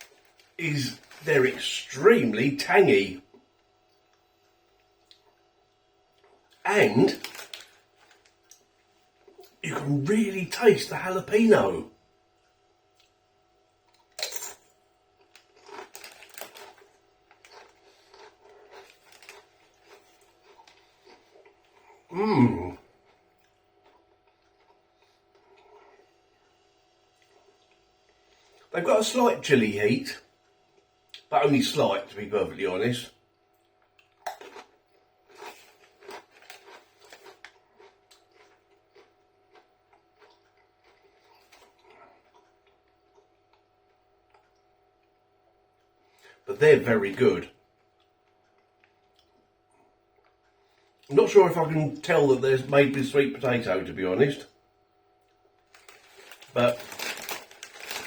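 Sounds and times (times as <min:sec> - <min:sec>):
chips crunching and chewing: 0:06.1 - 0:09.6, 0:13.8 - 0:26.5, 0:33.6 - 0:45.2, 0:55.3 - 0:58.0.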